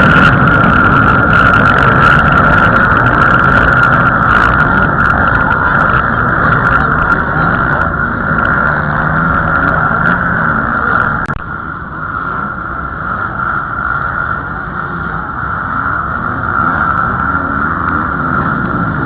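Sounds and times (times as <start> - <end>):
motocross bike engines revving: 0.0 - 19.0.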